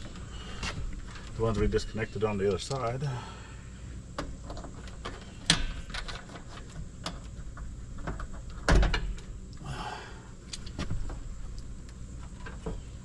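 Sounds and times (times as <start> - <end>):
clicks and rattles of wires: 4.2 - 9.6.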